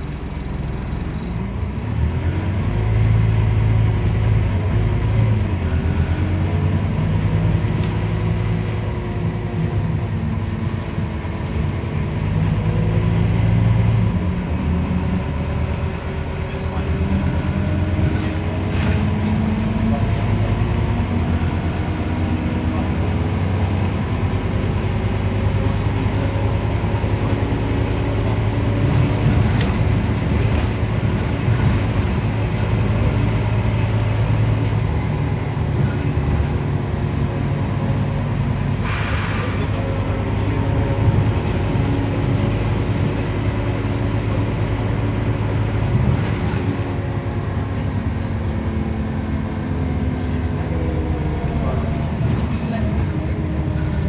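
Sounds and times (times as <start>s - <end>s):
bus engine running: 0.0s - 54.0s
short hiss: 38.8s - 39.8s.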